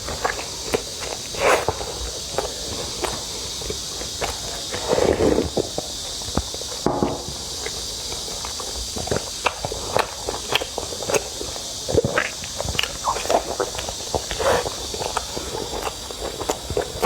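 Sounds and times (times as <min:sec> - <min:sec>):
steady hiss: 0:00.0 - 0:17.0
person chewing: 0:12.0 - 0:17.0.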